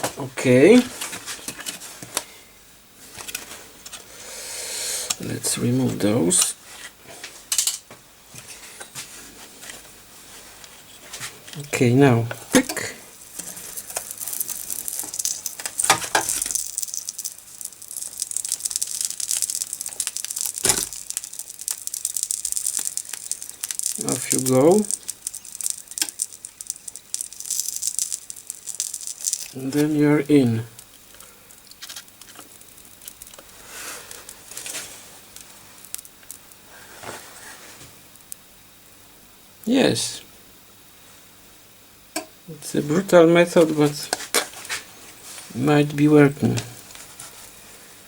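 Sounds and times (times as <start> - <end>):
flux crackling and sizzling: 10.8 - 38.5.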